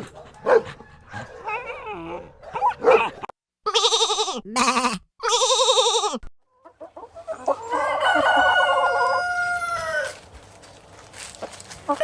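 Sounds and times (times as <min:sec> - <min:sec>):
rooster crowing: 0:00.4 - 0:01.6, 0:07.6 - 0:10.2
wavering bleats: 0:03.7 - 0:06.2
chicken clucking: 0:06.5 - 0:10.0.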